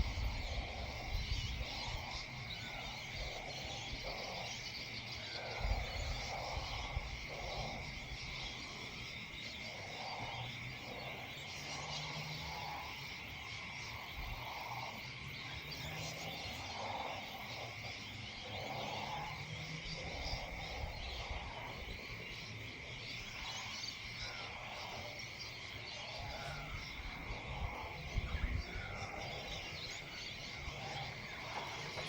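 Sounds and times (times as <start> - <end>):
high insect drone: 0.0 - 32.0
low croaking calls: 0.0 - 32.0.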